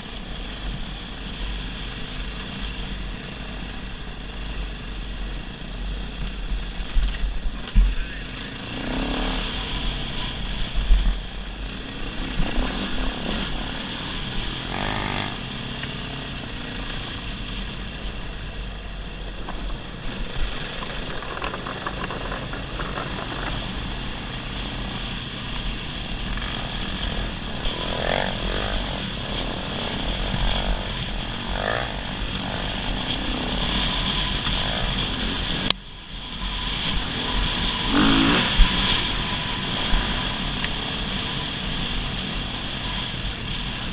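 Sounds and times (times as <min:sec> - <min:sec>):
dirt bike engine running: 0:00.0 - 0:43.9.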